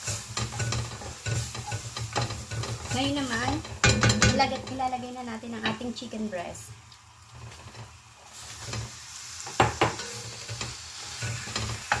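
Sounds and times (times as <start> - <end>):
spoon knocking and scraping a pot: 0.0 - 4.9, 8.6 - 12.0
food sizzling in a pot: 0.0 - 12.0.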